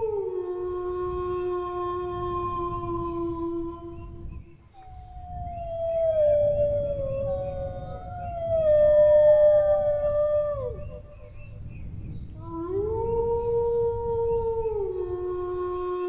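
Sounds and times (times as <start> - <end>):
dogs howling: 5.1 - 11.2.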